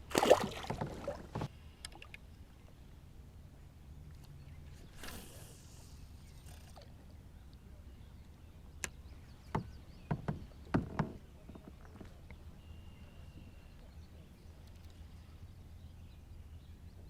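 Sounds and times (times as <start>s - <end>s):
knocks and taps on a kayak: 0.2s - 1.5s, 8.8s - 12.4s.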